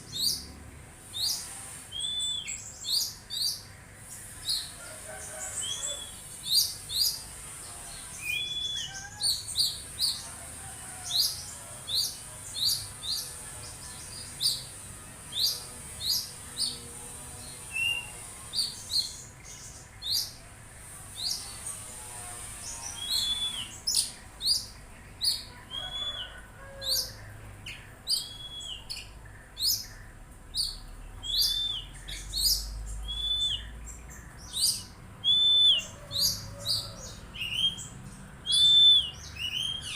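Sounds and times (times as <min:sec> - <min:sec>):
bird chirps and whistles: 0:01.2 - 0:02.6, 0:08.3 - 0:09.2, 0:23.0 - 0:23.8, 0:28.2 - 0:28.9, 0:31.2 - 0:33.7, 0:35.2 - 0:35.9, 0:38.5 - 0:39.9.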